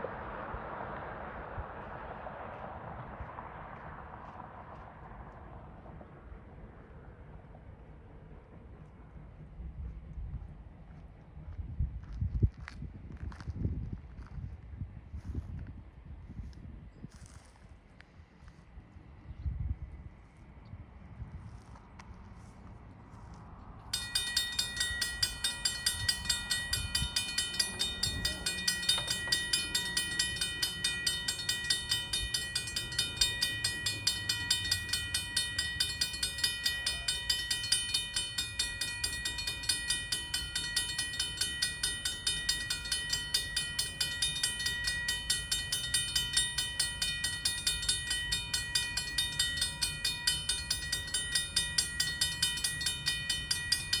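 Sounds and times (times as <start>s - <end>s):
low rumble: 0.0s - 17.4s
crossing warning bell ringing: 23.9s - 54.0s.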